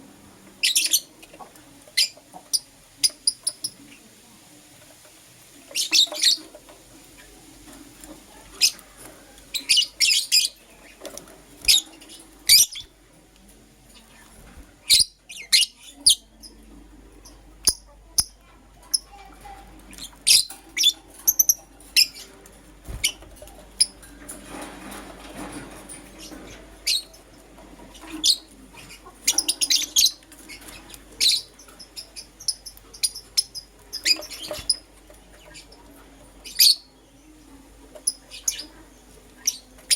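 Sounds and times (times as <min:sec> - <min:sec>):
lovebirds chirping: 0:00.6 - 0:01.4, 0:05.7 - 0:07.4, 0:08.5 - 0:13.0, 0:13.8 - 0:24.2, 0:26.1 - 0:39.9.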